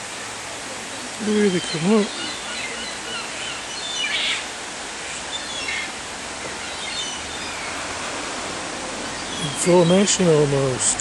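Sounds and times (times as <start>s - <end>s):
water rushing: 0.0s - 11.0s
bird chirps: 6.5s - 10.1s.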